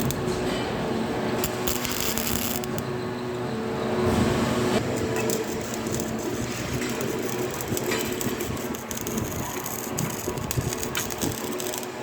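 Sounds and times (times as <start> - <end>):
welding arc crackling: 0.0 - 0.2, 1.3 - 2.8, 4.8 - 12.0
steady hum: 0.0 - 12.0.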